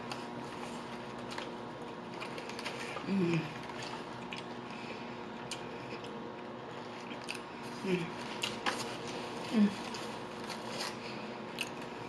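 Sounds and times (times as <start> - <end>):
chewing food: 0.0 - 12.0
low hum of voice: 3.0 - 3.8, 7.6 - 8.4, 9.4 - 10.2.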